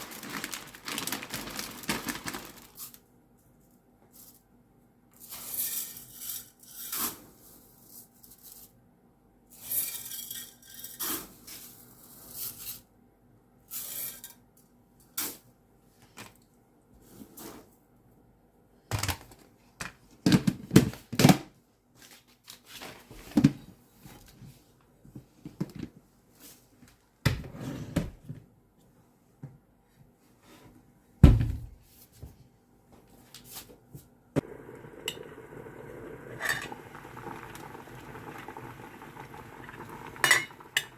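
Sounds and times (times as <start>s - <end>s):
food cooking hiss: 34.4s - 40.9s.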